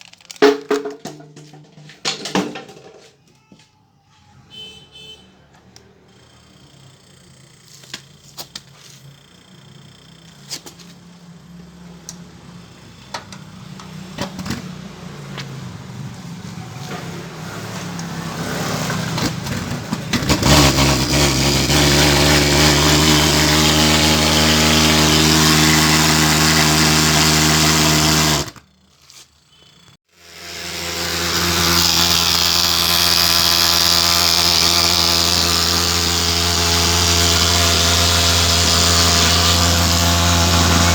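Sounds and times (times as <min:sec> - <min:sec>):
pulse-jet engine buzzing: 0:30.2 - 0:40.9.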